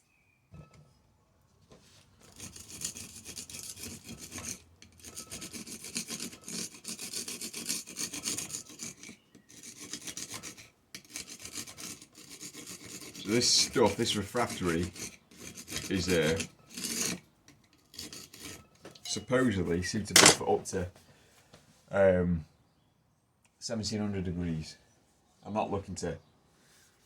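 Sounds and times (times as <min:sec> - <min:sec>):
hand scraping on a block: 0:02.2 - 0:20.4.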